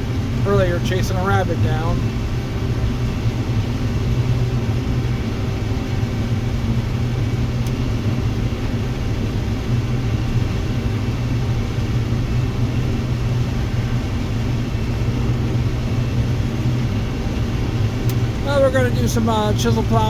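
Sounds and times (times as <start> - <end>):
combine harvester droning: 0.0 - 2.2, 18.1 - 20.0.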